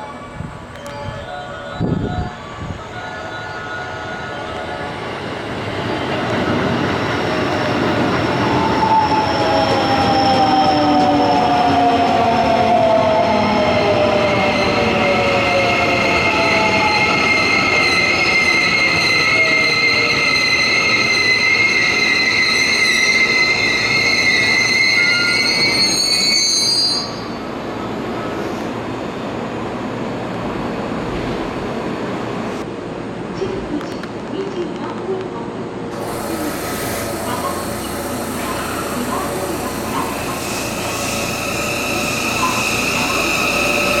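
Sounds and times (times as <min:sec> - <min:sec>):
brake and wheel squeal: 0:17.3 - 0:27.4, 0:37.5 - 0:44.0.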